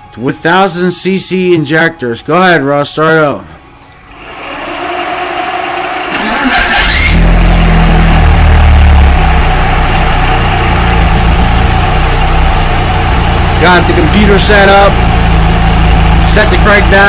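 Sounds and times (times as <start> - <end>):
car engine cranking and idling: 4.2 - 17.0.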